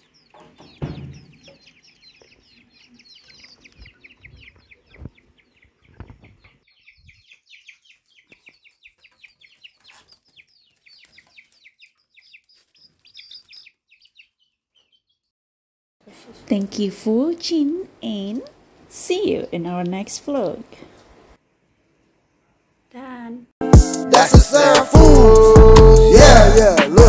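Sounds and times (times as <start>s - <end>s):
birds chirping faintly: 0.0s - 15.3s.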